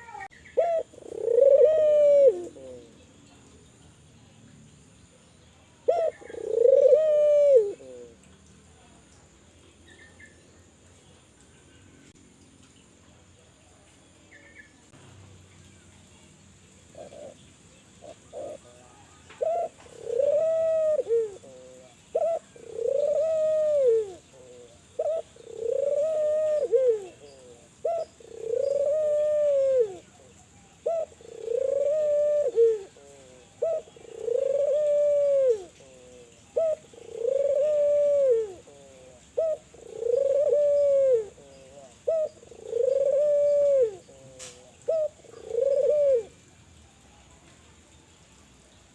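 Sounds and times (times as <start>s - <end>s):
dove cooing: 0.0s - 3.0s, 5.8s - 8.2s, 16.9s - 17.4s, 18.0s - 46.4s.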